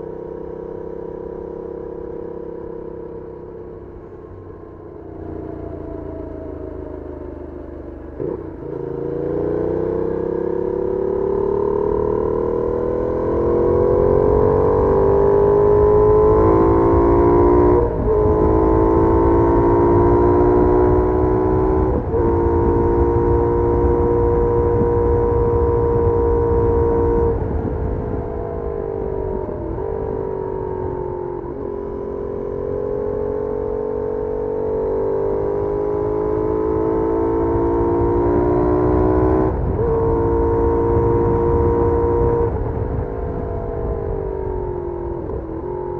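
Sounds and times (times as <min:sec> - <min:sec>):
motorcycle engine revving: 0:00.0 - 0:45.9
wind rumble on microphone: 0:11.9 - 0:34.4, 0:36.0 - 0:45.9.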